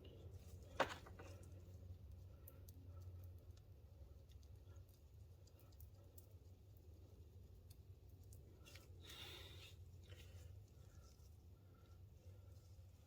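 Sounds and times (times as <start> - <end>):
low steady hum: 0.0 - 13.0
faint ticks and small clicks: 1.2 - 10.3.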